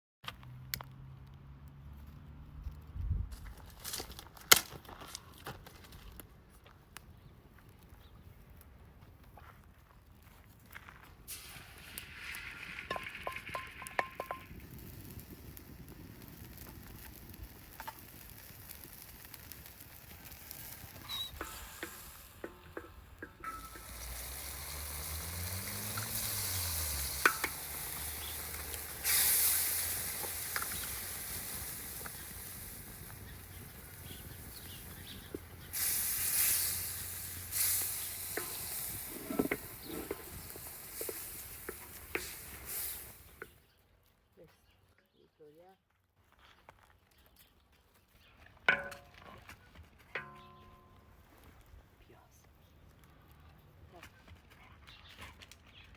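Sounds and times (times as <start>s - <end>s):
stirring clinks and knocks: 11.3s - 14.6s, 21.3s - 24.6s
tomatoes sizzling in a pan: 11.3s - 43.6s.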